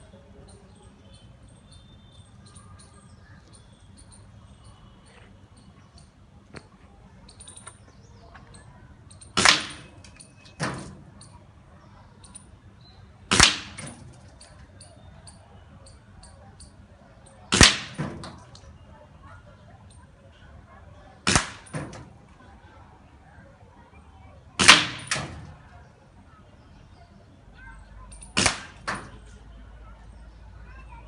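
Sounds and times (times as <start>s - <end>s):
air rifle shots: 9.4s - 11.0s, 13.3s - 14.0s, 17.5s - 18.4s, 21.2s - 22.0s, 24.6s - 25.5s, 28.4s - 29.0s.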